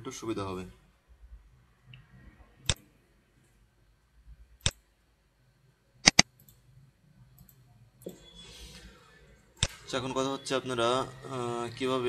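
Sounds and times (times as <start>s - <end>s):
mouse button clicking: 6.0s - 6.2s.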